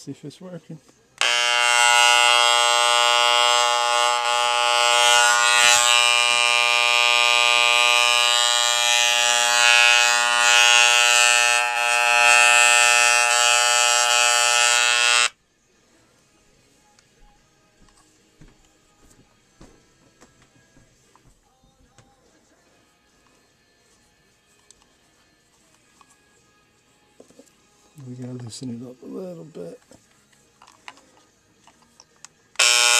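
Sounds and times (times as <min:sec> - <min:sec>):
hair clipper buzzing: 0:01.2 - 0:15.4, 0:32.6 - 0:32.9.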